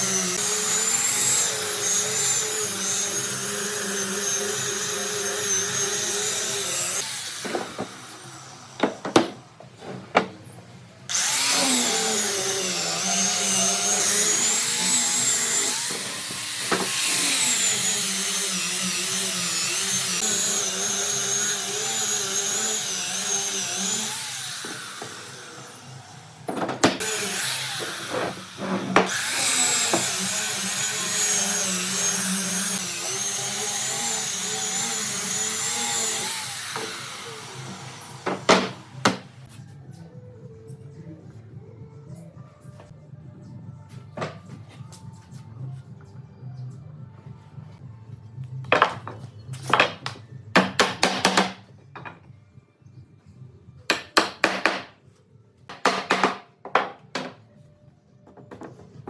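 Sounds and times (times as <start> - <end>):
electric power tool motor: 11.1 - 38.2.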